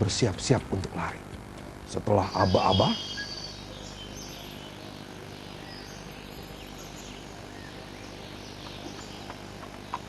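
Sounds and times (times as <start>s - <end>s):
insect hiss: 0.0s - 9.9s
high bird chirps: 2.2s - 9.5s.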